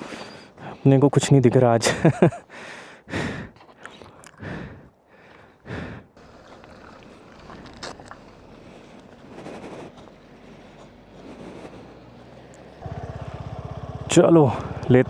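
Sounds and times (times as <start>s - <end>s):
person breathing heavily: 0.0s - 0.9s, 2.3s - 13.4s.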